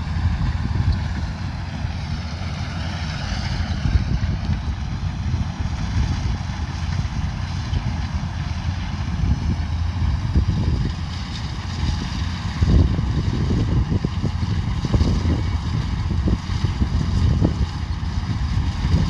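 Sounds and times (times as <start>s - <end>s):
diesel engine rumble: 0.0s - 19.0s.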